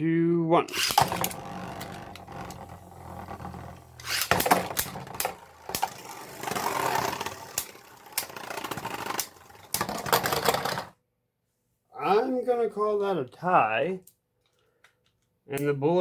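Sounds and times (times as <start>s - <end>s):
spinning tops clacking together: 0.7s - 10.9s
spinning tops rattling and scraping: 0.7s - 10.9s
spinning tops whirring: 0.7s - 10.9s.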